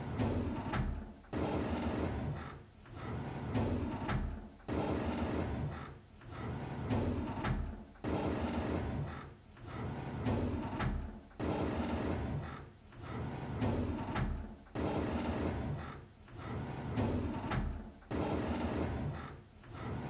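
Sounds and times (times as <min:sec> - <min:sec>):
drawer sliding open: 0:09.7 - 0:20.0.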